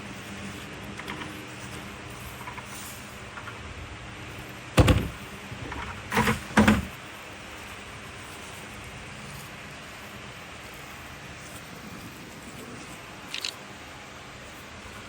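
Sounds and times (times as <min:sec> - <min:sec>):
loud knocks: 0:04.8 - 0:06.9.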